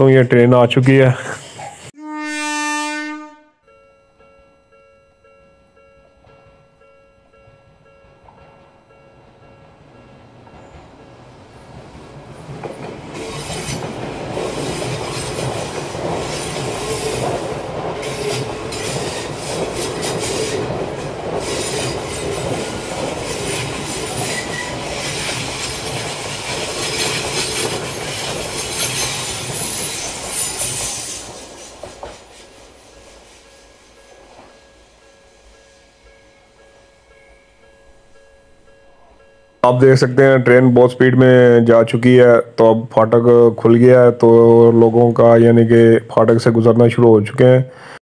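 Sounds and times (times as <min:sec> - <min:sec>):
train wheels rolling on rails: 0:06.0 - 0:42.2.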